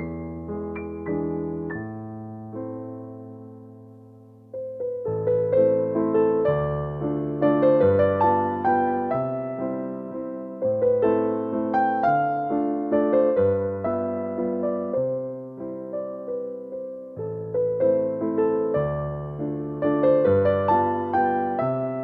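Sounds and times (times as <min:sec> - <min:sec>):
slow gentle piano music: 0:00.0 - 0:22.0.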